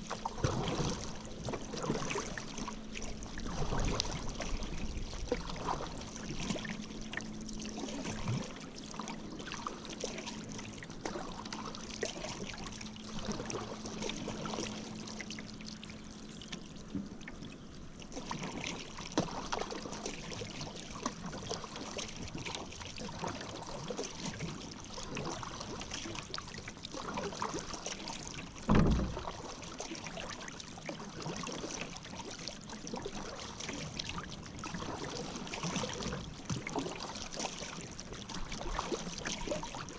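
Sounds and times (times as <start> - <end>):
paddle strokes in water: 0.0 - 39.9
dull thump: 28.7 - 29.2.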